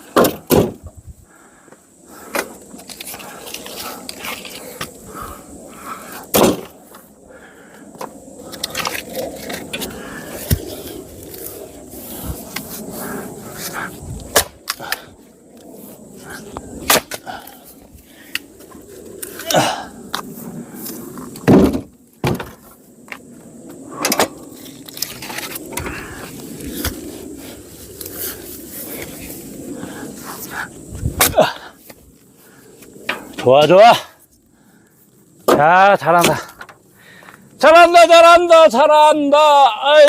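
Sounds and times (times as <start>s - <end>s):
firewood logs knocking and thudding: 0.0s - 1.0s, 6.3s - 7.1s, 21.3s - 23.2s, 35.4s - 36.8s
loud wooden clunk: 0.2s - 0.9s, 21.4s - 22.6s.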